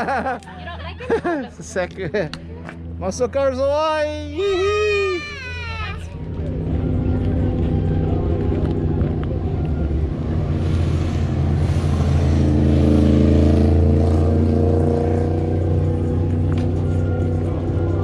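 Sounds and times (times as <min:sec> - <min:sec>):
deep car engine running: 0:05.9 - 0:18.0.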